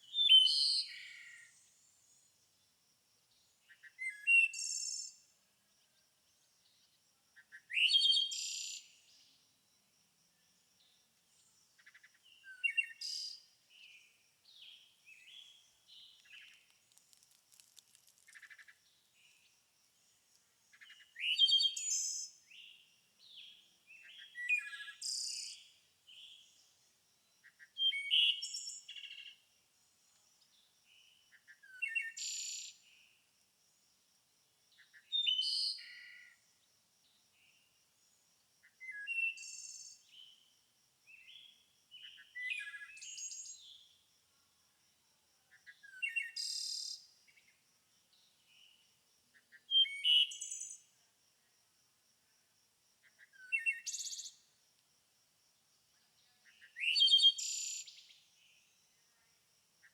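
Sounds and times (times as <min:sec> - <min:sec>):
songbirds singing: 0:00.0 - 0:02.7, 0:03.3 - 0:09.5, 0:10.3 - 0:33.2, 0:34.8 - 0:36.4, 0:53.0 - 0:54.5.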